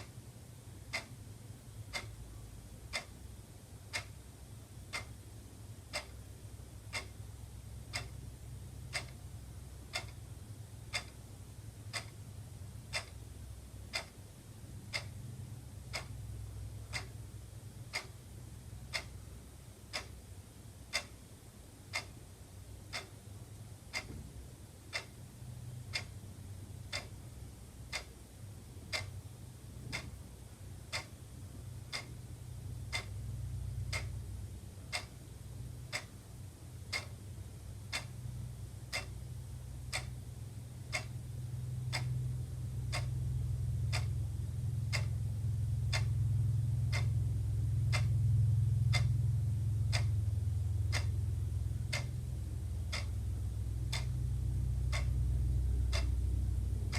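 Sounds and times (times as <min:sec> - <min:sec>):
wall clock ticking: 0:00.0 - 0:56.9
low hum: 0:24.9 - 0:56.9.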